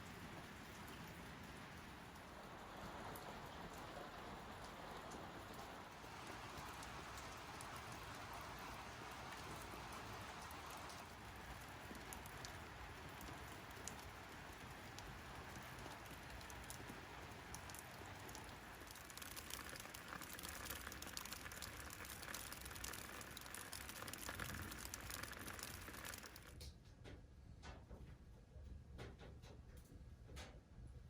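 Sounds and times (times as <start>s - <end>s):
rain pattering: 0.0s - 26.7s
faint clicks: 3.1s - 26.7s.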